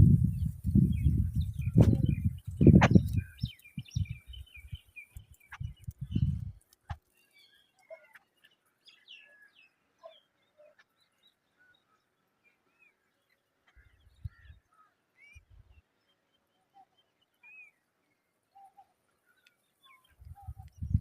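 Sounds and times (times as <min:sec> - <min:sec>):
low thumps: 0:00.0 - 0:03.3
faint bird chirps: 0:00.0 - 0:21.0.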